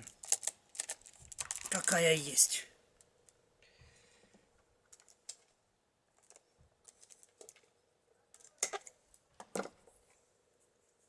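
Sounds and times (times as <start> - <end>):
wicker rods crackling and scraping: 0.0 - 2.3, 6.2 - 7.7.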